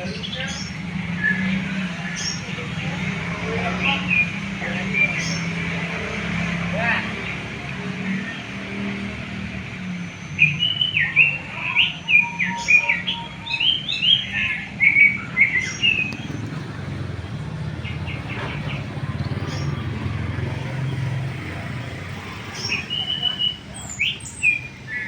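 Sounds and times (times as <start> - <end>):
songbird chirping: 0.0 - 25.0.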